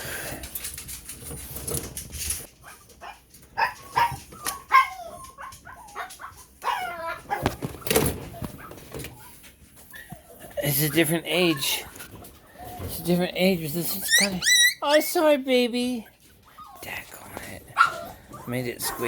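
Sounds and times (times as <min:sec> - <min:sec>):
rustling handling noise: 0:00.0 - 0:14.4
small dogs yipping and whining: 0:02.6 - 0:07.6, 0:13.9 - 0:15.1, 0:16.4 - 0:16.8, 0:17.8 - 0:19.0.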